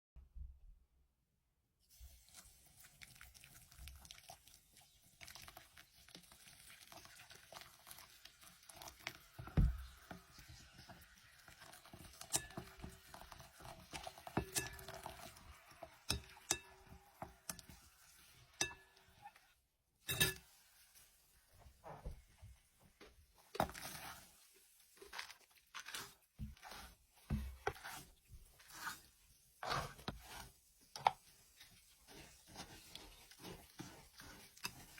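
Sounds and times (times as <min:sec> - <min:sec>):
soft rustle: 0:20.4 - 0:34.9.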